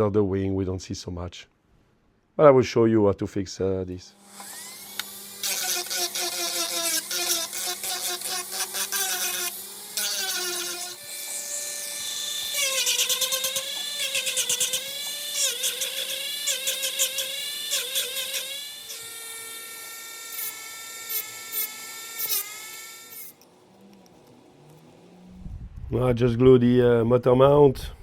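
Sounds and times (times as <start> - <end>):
rotary tool motor whine: 4.2 - 25.4.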